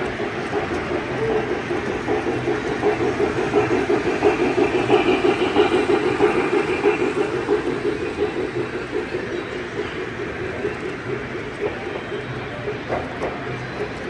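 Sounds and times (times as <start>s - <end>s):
model train running on track: 0.0s - 14.0s.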